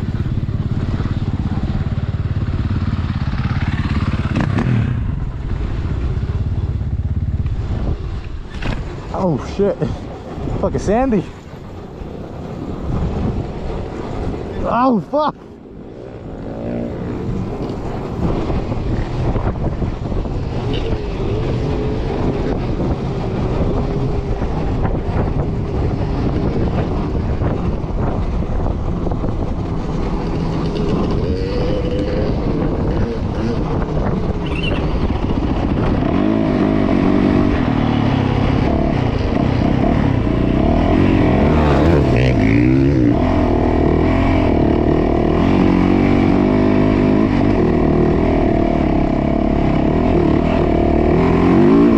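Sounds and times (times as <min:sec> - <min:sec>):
dirt bike engine revving: 0:30.2 - 0:51.9.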